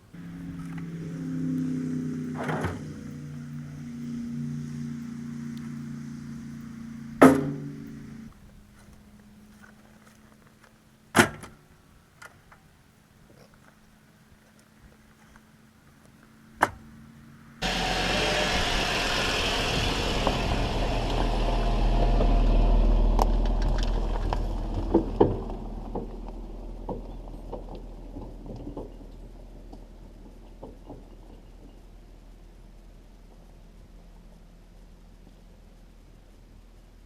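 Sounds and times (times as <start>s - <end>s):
vehicle engine running: 0.0s - 10.6s, 15.2s - 37.0s
clanks and knocks: 7.2s - 8.2s, 23.2s - 31.8s.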